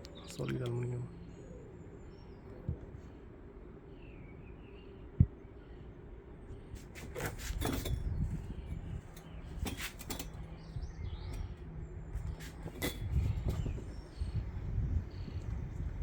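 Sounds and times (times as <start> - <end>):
faint bird chirps: 0.0 - 6.7.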